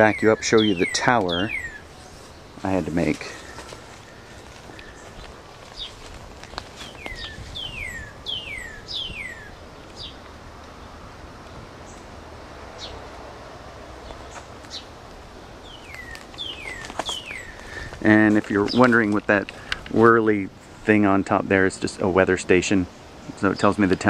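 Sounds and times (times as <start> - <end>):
bird chirping: 0.0 - 11.0, 12.7 - 13.0, 14.0 - 20.4.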